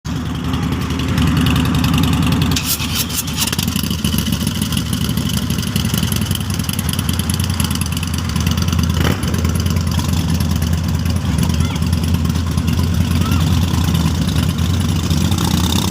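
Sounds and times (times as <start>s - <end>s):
motorcycle engine running: 0.1s - 15.9s.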